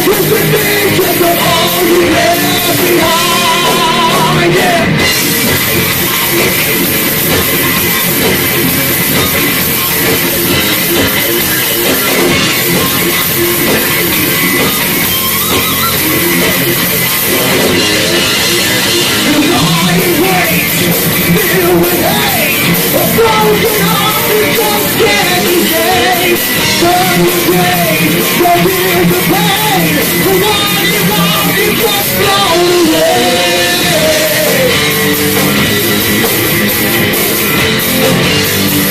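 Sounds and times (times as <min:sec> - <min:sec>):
person singing: 0:00.0 - 0:05.1, 0:19.0 - 0:35.1
heavy metal band playing: 0:00.0 - 0:38.9.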